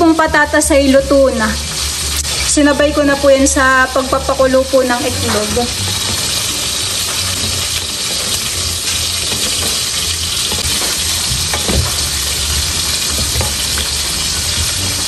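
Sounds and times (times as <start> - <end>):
food sizzling in a wok: 0.0 - 15.0
wooden spatulas scraping and knocking: 5.3 - 15.0.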